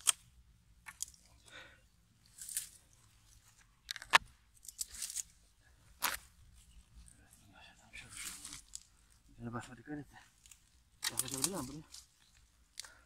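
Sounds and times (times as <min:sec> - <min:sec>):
dry crackling and snapping: 0:00.0 - 0:01.6, 0:02.2 - 0:06.3, 0:08.0 - 0:09.3, 0:10.3 - 0:13.0
soft rustling: 0:02.2 - 0:12.7.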